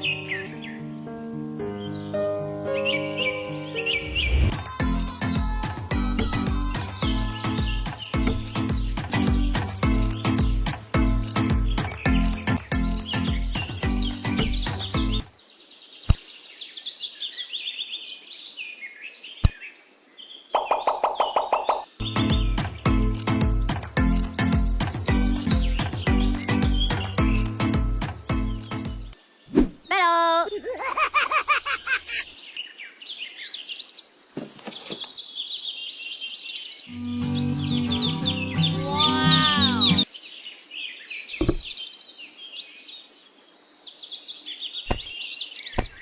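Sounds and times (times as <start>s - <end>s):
birds chirping: 0.0s - 46.0s
music with held low notes: 4.8s - 15.2s, 22.0s - 29.2s.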